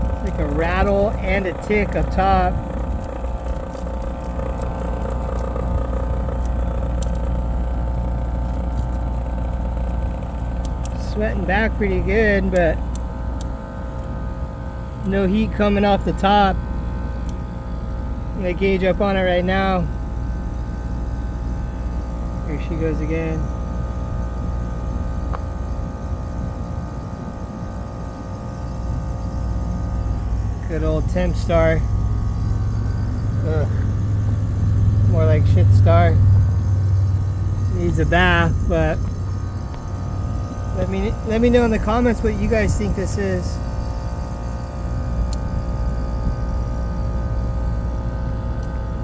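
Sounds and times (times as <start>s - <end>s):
irregular ticks: 0.0s - 11.1s
rattle: 0.0s - 14.1s, 20.0s - 46.6s
air conditioner compressor humming: 0.0s - 49.0s.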